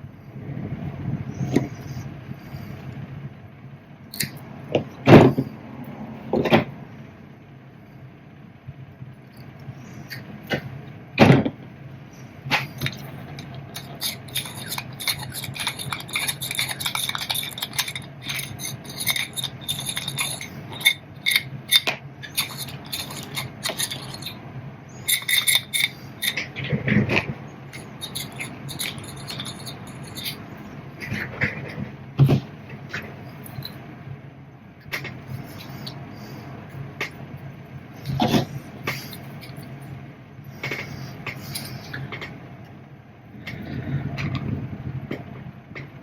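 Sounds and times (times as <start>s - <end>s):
small metal parts clinking: 12.7s - 24.4s, 25.0s - 26.4s, 27.8s - 30.5s.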